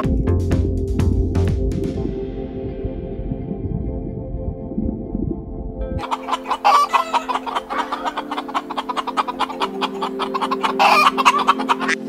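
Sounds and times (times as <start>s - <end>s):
soft background music: 0.0s - 12.0s
chickens clucking: 6.0s - 12.0s.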